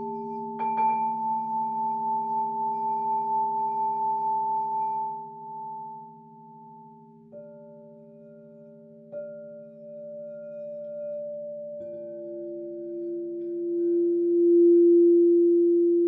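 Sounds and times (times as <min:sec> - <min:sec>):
singing bowl struck: 0:00.0 - 0:04.4
singing bowls ringing: 0:00.0 - 0:16.0.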